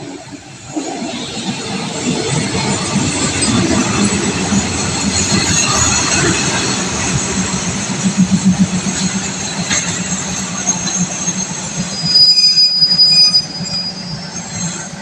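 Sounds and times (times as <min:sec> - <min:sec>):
train rumbling and slowing: 0:00.0 - 0:15.0
wheels clicking over rail joints: 0:00.4 - 0:12.0.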